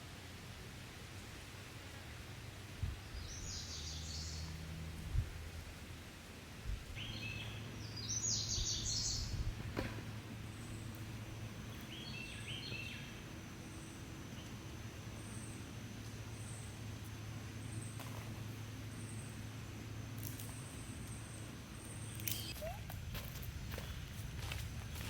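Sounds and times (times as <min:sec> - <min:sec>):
steady low hum: 0:00.0 - 0:25.0
birds chirping: 0:03.0 - 0:04.6, 0:06.9 - 0:18.0, 0:18.6 - 0:22.9.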